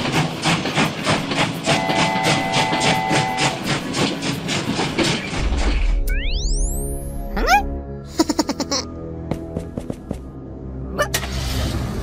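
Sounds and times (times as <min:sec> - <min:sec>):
steam train chuffing: 0:00.0 - 0:05.3
steam whistle chord: 0:01.7 - 0:03.6.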